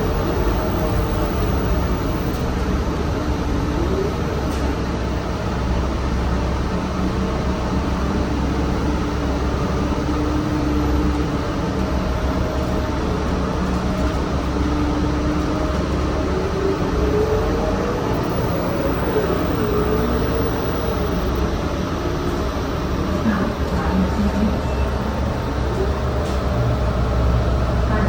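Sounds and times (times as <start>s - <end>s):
faint drivetrain whine: 0.0s - 3.9s, 5.1s - 21.9s
bus engine and road rumble: 0.0s - 28.0s.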